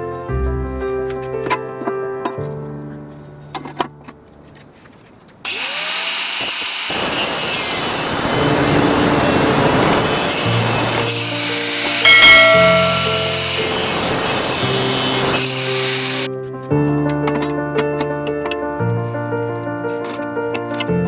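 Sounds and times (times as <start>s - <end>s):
angle grinder cutting: 5.5s - 16.3s
angle grinder whining: 5.5s - 16.3s.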